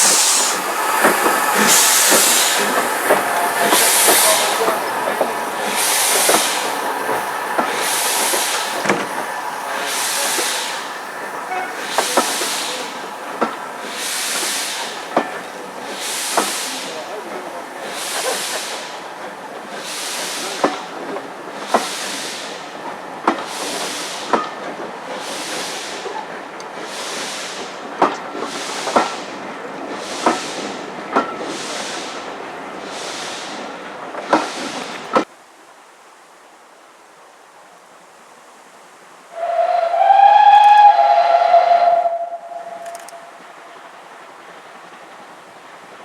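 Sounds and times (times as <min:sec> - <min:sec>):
steam locomotive whistle: 0:00.0 - 0:15.4, 0:39.3 - 0:43.8
steam locomotive chuffing: 0:00.0 - 0:35.3, 0:39.4 - 0:46.0
train wheels clicking on rail joint: 0:00.0 - 0:35.3, 0:39.4 - 0:43.9.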